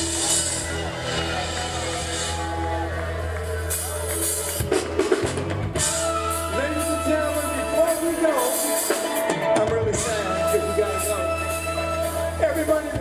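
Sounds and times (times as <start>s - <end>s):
drum kit: 0.0s - 13.0s
live band music: 0.0s - 13.0s
person singing: 5.8s - 13.0s.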